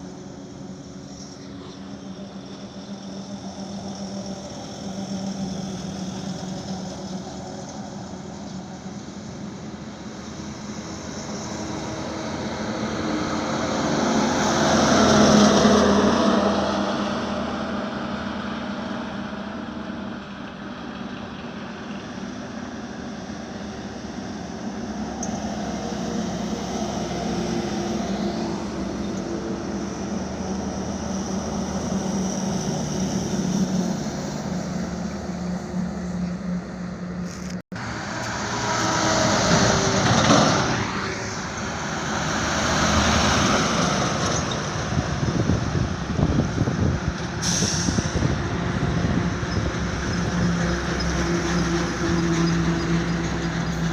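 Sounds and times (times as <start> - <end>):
truck engine hum: 0.0 - 53.9
vehicle passing close: 23.4 - 53.9.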